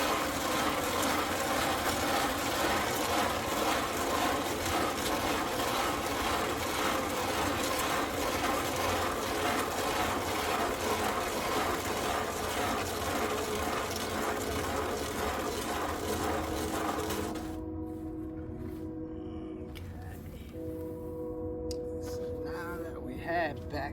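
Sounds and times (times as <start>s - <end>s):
concrete mixer grinding: 0.0s - 17.7s.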